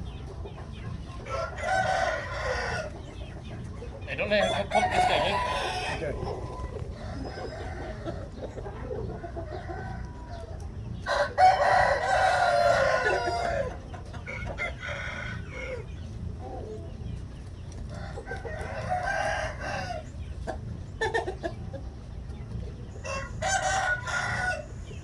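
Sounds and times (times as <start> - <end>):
hens clucking: 0.0 - 25.0
rooster crowing: 1.2 - 3.1, 4.2 - 8.3, 11.1 - 15.9, 18.0 - 20.1, 23.0 - 25.0.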